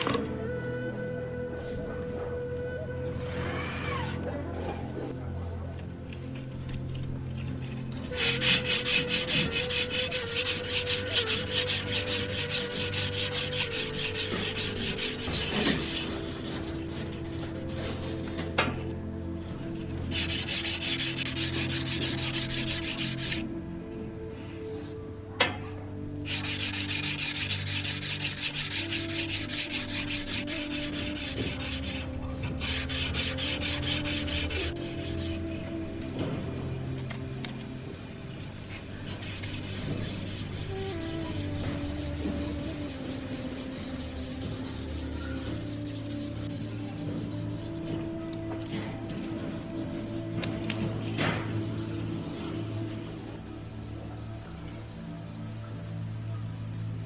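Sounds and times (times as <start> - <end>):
rapid hand rubbing strokes: 7.0 - 18.4, 19.8 - 23.5, 26.2 - 49.2, 50.6 - 57.0.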